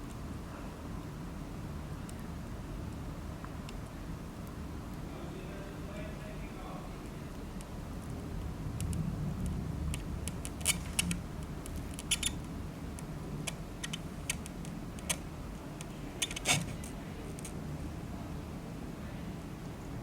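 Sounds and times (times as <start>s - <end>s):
steady low rumble: 5.9s - 20.0s.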